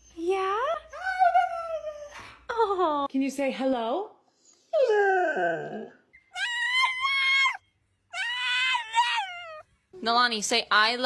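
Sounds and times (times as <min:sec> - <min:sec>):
dog whining howls: 0:06.4 - 0:09.6.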